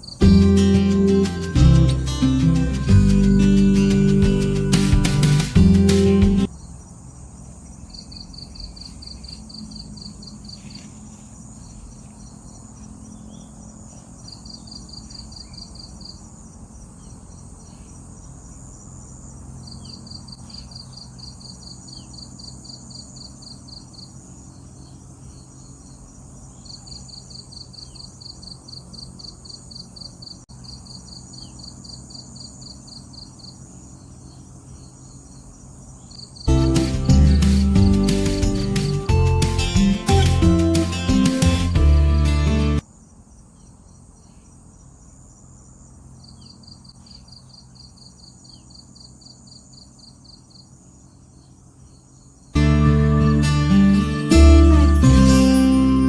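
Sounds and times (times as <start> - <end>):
insect pulsed trill: 0.0 - 10.8, 11.4 - 41.2.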